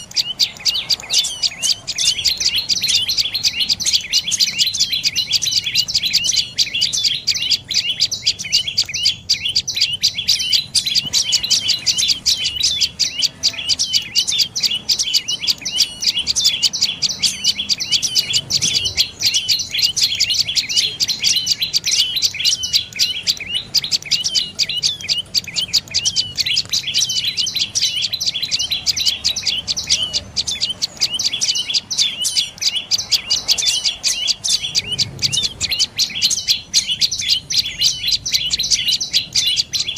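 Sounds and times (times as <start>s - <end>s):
bird calling high chirps: 0.0s - 39.9s.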